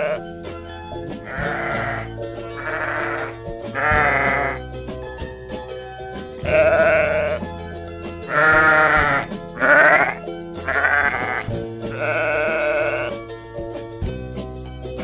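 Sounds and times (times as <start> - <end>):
sheep bleating: 0.0 - 0.2, 1.3 - 4.6, 6.4 - 7.4, 8.3 - 13.2
background music: 0.0 - 15.0.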